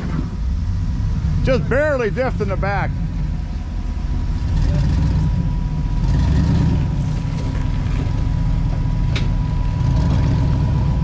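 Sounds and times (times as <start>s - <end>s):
engine running low: 0.0s - 11.0s
drivetrain clicks and creaks: 7.0s - 9.8s.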